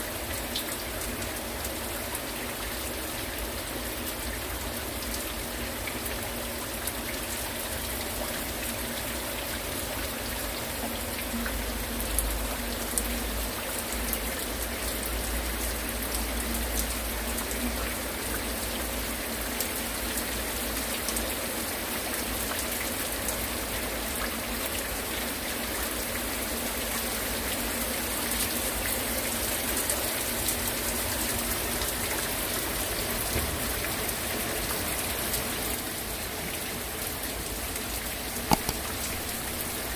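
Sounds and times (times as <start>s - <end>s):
heavy rain pattering: 28.0s - 39.9s.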